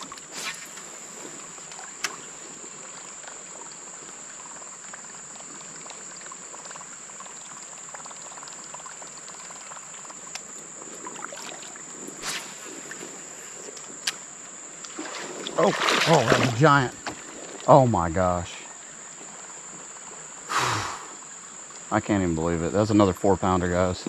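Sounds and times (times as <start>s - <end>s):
creek water trickling: 0.0s - 24.0s
short splash: 11.0s - 13.2s, 14.9s - 17.0s.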